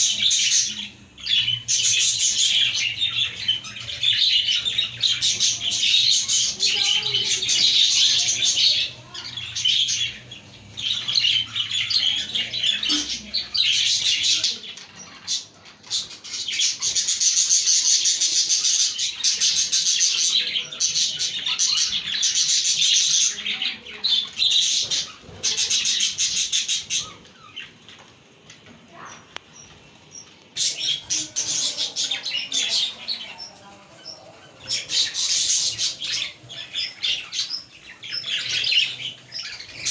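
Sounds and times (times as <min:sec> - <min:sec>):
budgerigars chattering and warbling: 0:00.0 - 0:28.1, 0:28.9 - 0:39.9.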